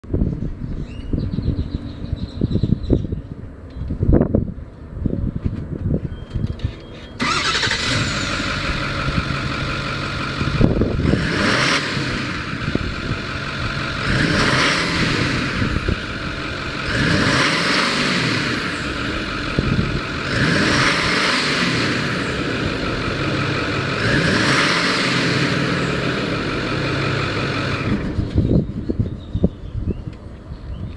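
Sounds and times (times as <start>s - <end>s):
truck engine starting and revving: 7.1s - 28.8s.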